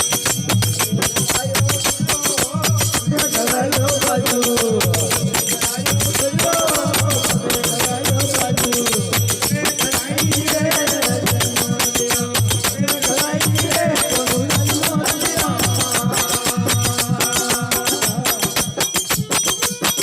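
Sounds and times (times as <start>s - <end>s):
steady low drum beat: 0.0s - 19.8s
jingling high percussion: 0.0s - 20.0s.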